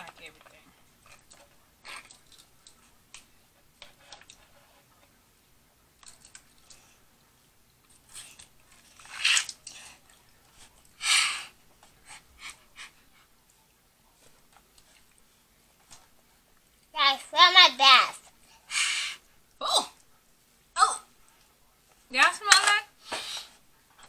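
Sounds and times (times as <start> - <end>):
chewing with clicks: 1.0 - 3.3, 6.0 - 6.9.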